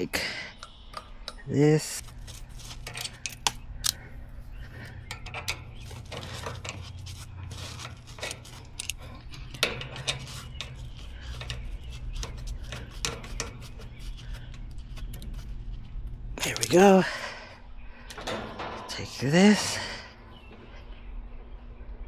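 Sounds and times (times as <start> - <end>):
steady low hum: 0.0 - 22.0
metal tools clicking and scraping: 2.0 - 15.6, 16.4 - 17.3.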